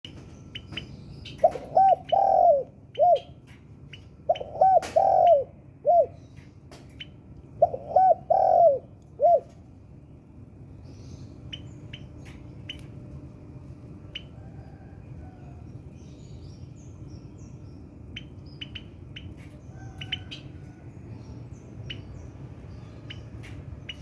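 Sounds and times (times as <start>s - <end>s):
dove cooing: 1.3s - 3.4s, 4.2s - 6.2s, 7.6s - 9.6s.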